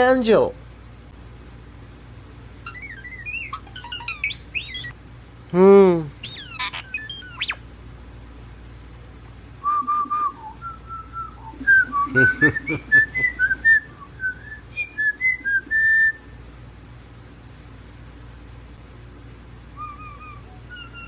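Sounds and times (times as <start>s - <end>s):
pet bird whistling a tune: 2.6s - 5.0s, 6.2s - 7.6s, 9.7s - 16.3s, 19.8s - 21.0s.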